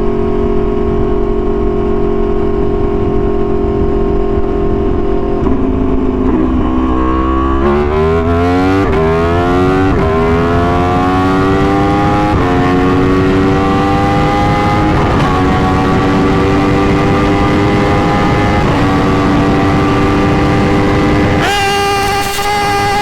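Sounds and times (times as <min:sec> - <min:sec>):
motorcycle engine revving through gear changes: 0:00.0 - 0:23.0.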